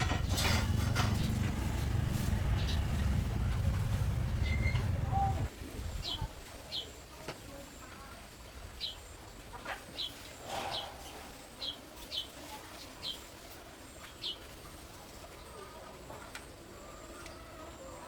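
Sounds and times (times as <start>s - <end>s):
small bird chirping: 1.2s - 5.5s.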